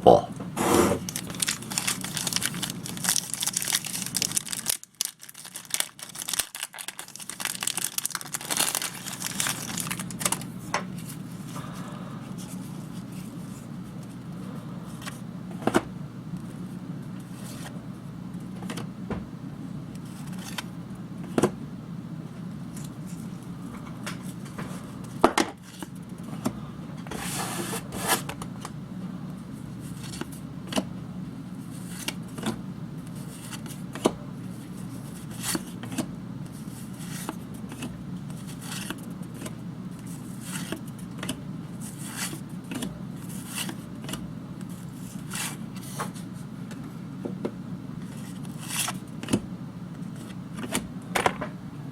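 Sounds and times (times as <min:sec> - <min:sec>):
wrapper crinkling and tearing: 0:01.0 - 0:10.5.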